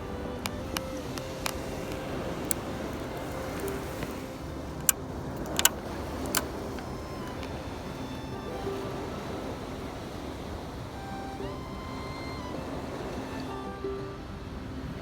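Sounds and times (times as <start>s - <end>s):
steady background noise: 0.0s - 15.0s
sharp clicks: 0.2s - 7.6s.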